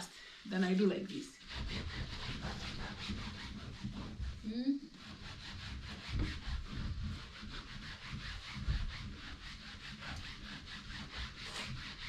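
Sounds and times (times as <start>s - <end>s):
cloth scrubbing a chair: 0.9s - 12.0s.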